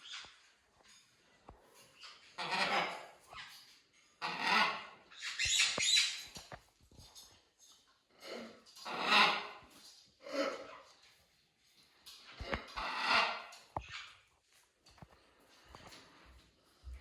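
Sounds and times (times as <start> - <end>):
parrot squawking: 2.3 - 3.5, 4.2 - 6.2, 8.8 - 9.6, 12.6 - 14.1.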